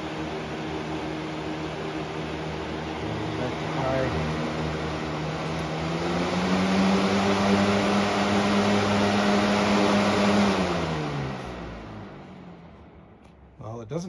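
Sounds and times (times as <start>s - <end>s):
box fan humming: 0.0s - 14.0s.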